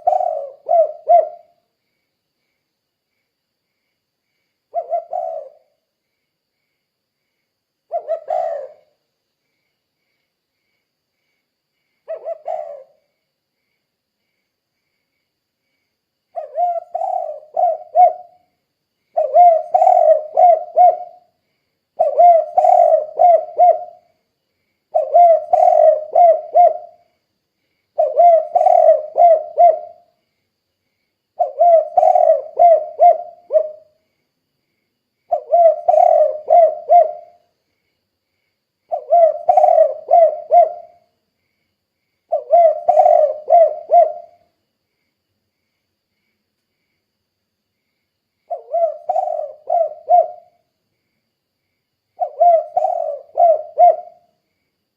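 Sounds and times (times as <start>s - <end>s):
dove cooing: 0.0s - 1.6s, 4.7s - 5.8s, 7.9s - 9.0s, 12.1s - 13.0s, 16.4s - 18.4s, 19.2s - 21.4s, 22.0s - 24.1s, 24.9s - 27.0s, 28.0s - 30.1s, 31.4s - 34.0s, 35.3s - 37.4s, 38.9s - 41.0s, 42.3s - 44.5s, 48.5s - 50.6s, 52.2s - 54.3s.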